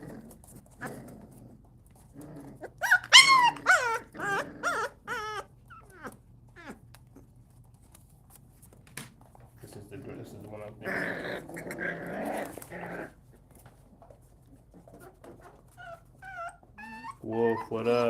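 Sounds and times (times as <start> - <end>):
puppy low grumbling: 0.0 - 7.3, 10.0 - 13.2
puppies whimpering and yelping: 2.6 - 6.9, 14.8 - 18.0.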